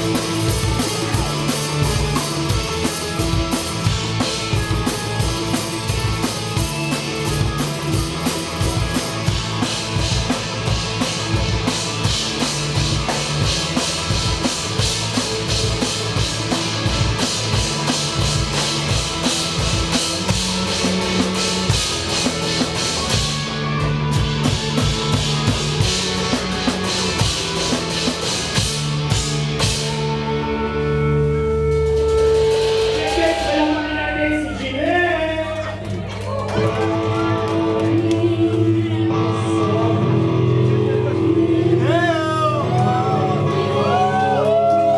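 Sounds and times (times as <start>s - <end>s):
loud busy drumming: 0.0s - 30.4s, 31.5s - 34.1s
live rock band playing: 0.0s - 34.5s, 36.5s - 44.9s.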